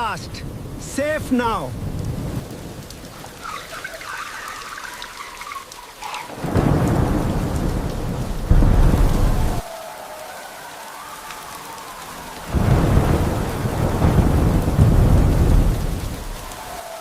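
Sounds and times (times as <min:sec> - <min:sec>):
rain falling: 0:00.0 - 0:17.0
thunder rumbling: 0:00.0 - 0:17.0.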